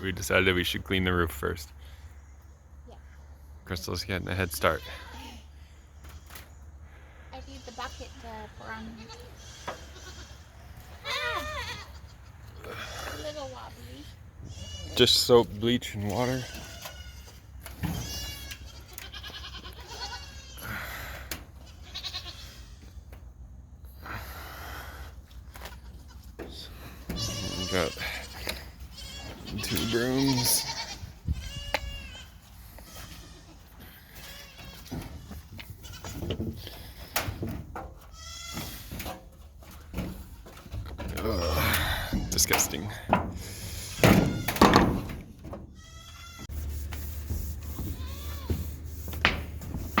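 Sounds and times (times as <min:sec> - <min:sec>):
goats bleating: 0:07.5 - 0:13.6, 0:14.4 - 0:15.4, 0:16.1 - 0:23.0, 0:25.5 - 0:46.5, 0:47.7 - 0:48.7.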